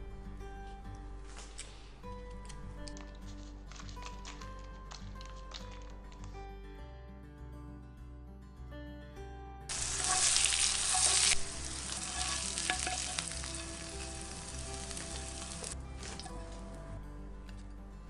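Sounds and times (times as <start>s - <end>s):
quiet instrumental music: 0.0s - 18.0s
food sizzling in hot oil: 9.7s - 16.2s.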